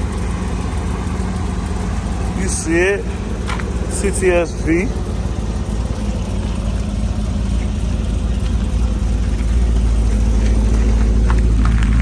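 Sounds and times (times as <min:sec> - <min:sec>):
car engine rumble: 0:00.0 - 0:12.0.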